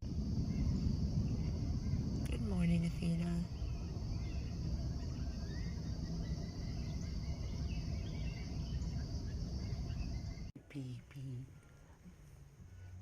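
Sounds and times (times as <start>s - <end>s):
low rumble: 0.0s - 13.0s
faint bird chirps: 0.4s - 13.0s.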